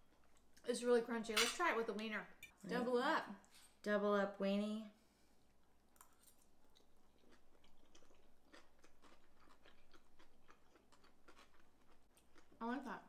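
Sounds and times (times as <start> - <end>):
chewing crunchy food: 6.0 - 13.0.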